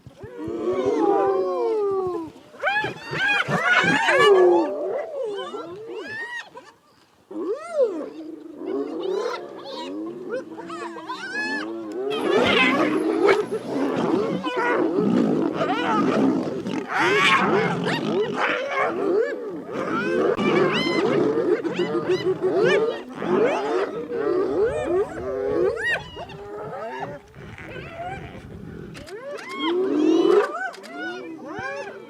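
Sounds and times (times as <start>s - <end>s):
hyenas whooping and cackling: 2.6s - 6.7s, 8.8s - 28.4s
lion growls and snarls: 8.2s - 30.6s.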